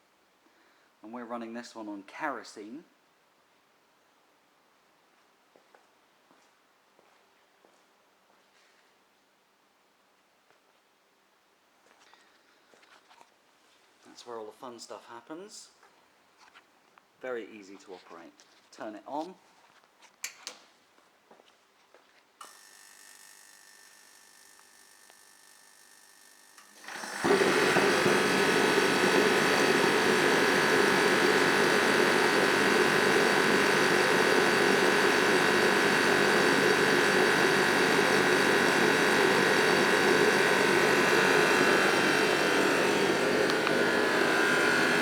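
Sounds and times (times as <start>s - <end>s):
space heater fan and burner: 25.0s - 45.0s.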